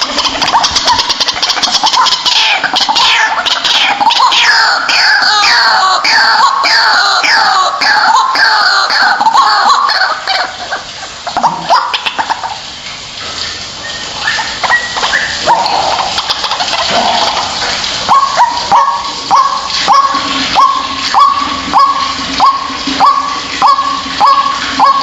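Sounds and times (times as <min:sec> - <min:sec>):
waterhen calling: 0:00.0 - 0:25.0.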